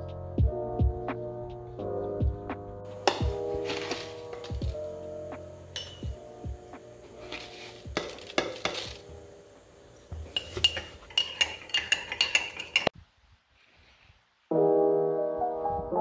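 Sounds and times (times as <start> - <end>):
metal utensil scraping cookware: 3.0 - 4.7, 5.8 - 6.1, 7.1 - 9.1, 10.3 - 12.9
utensil clinking against pot: 5.8 - 6.1, 7.3 - 9.0, 10.3 - 12.9.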